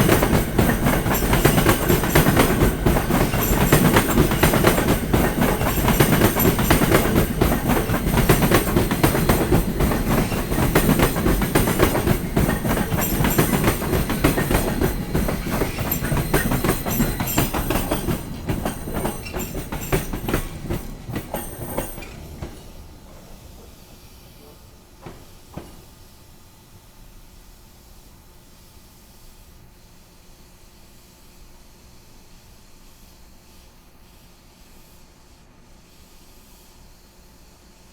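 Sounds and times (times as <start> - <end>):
train wheels clattering on rails: 0.0 - 26.4.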